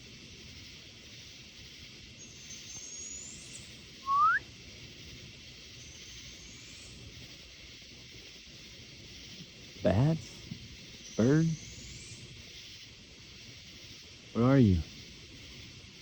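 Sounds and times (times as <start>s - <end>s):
night insects hissing: 0.0s - 16.0s
animal whistle sliding upward: 4.0s - 4.4s
faint high whistle: 4.0s - 4.5s.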